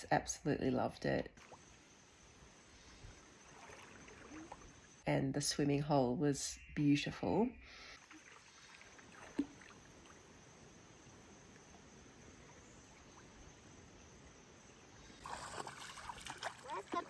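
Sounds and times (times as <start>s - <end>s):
splashing: 3.4s - 4.8s, 8.0s - 10.2s, 15.2s - 17.0s
flowing water rushing: 15.2s - 17.0s.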